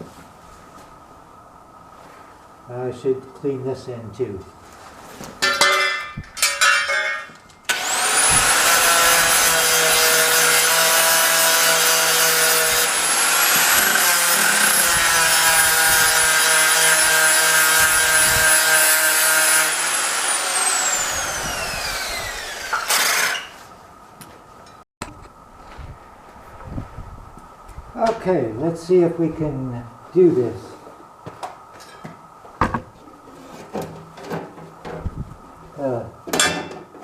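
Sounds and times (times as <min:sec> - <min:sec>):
angle grinder grinding steel: 0:07.7 - 0:23.7
angle grinder whine: 0:07.7 - 0:23.7.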